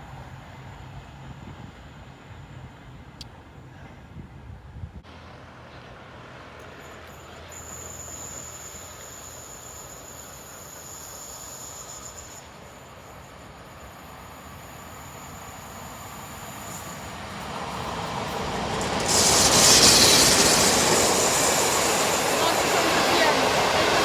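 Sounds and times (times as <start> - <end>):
train approaching and passing: 0.0 - 24.0.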